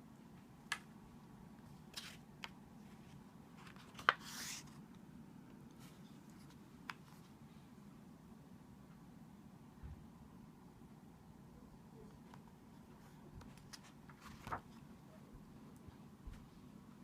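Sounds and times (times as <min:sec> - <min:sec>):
paper page turning: 0:01.9 - 0:04.8, 0:13.4 - 0:14.8.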